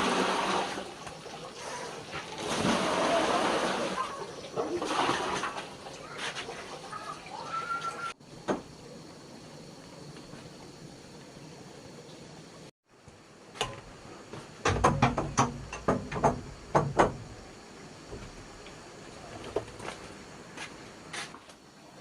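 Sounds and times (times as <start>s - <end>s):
sharp knocks and clatters: 13.6s - 17.4s.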